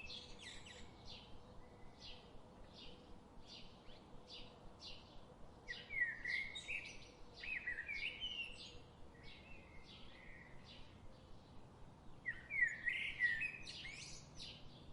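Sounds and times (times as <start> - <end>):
bird singing chirps and whistles: 12.3 - 14.3.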